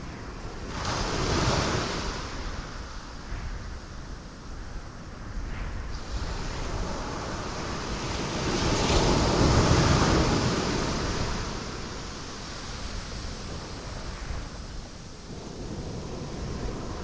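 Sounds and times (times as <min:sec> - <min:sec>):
ocean waves breaking on rocks: 0:06.0 - 0:17.0.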